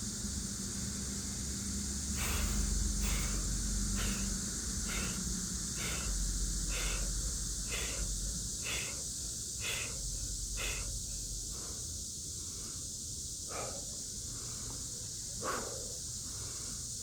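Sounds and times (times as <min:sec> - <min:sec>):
cicada chorus: 0:00.0 - 0:17.0
man breathing out hard: 0:02.2 - 0:12.8, 0:15.4 - 0:16.9.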